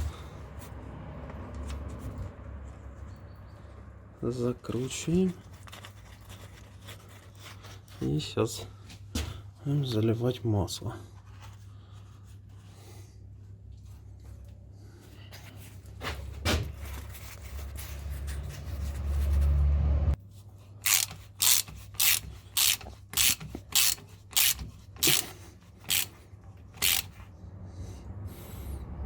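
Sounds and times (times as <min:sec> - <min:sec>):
hand tool rasping strokes: 0:20.8 - 0:26.2, 0:26.8 - 0:27.2.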